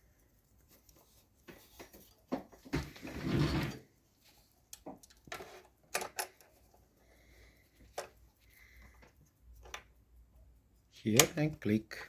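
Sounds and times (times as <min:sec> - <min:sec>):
sewing machine parts clicking: 0:04.7 - 0:06.6.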